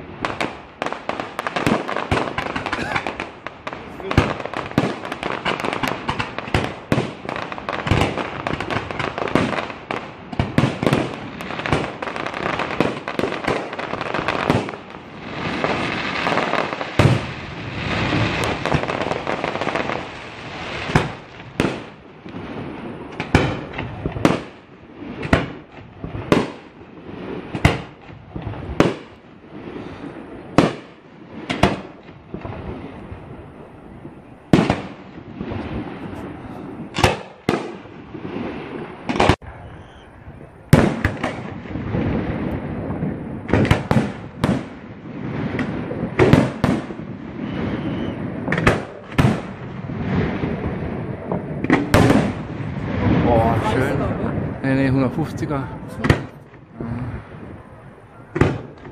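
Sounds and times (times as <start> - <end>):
fireworks bangs and crackling: 0.0 - 58.9.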